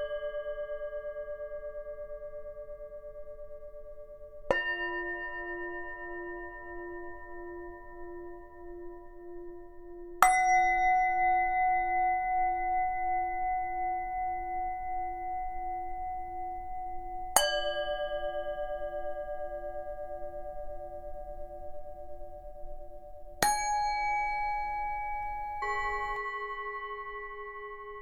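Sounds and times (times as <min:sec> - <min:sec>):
low pulsing bowl tone: 0:15.6 - 0:28.0
singing bowl strikes ringing: 0:23.4 - 0:28.0.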